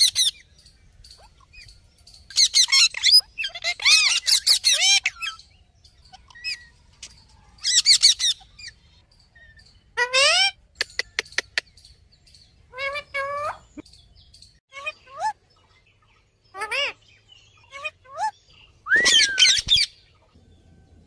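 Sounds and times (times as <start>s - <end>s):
parrot shrill calls: 2.3s - 5.4s, 7.6s - 10.6s, 16.5s - 17.0s, 17.6s - 19.9s.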